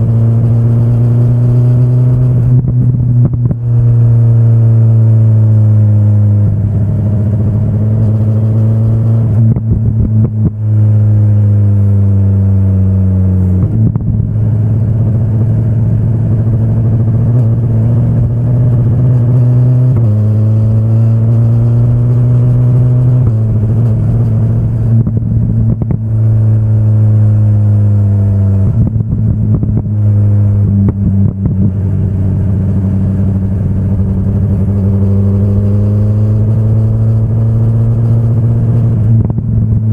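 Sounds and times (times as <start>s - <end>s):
motorcycle engine changing gears: 13.7s - 39.9s.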